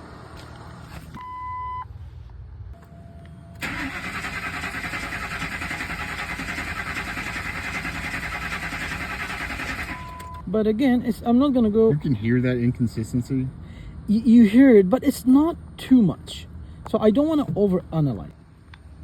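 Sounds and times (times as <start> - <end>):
truck engine starting and running: 2.8 - 10.5.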